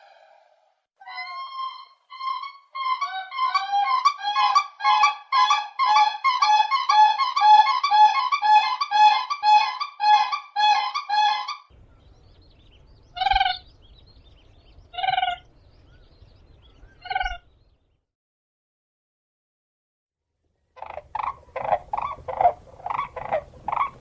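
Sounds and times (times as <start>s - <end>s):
crane trumpeting calls: 1.1s - 11.7s, 20.8s - 24.0s.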